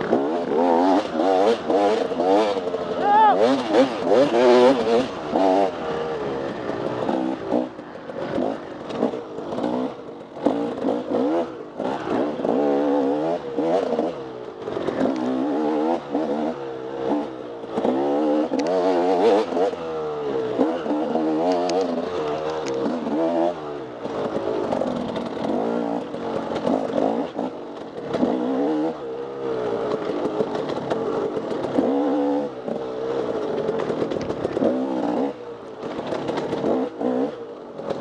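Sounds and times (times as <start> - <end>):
dirt bike engine revving: 0.0 - 38.0
bike knocks and rattles: 32.7 - 35.0, 35.8 - 37.1.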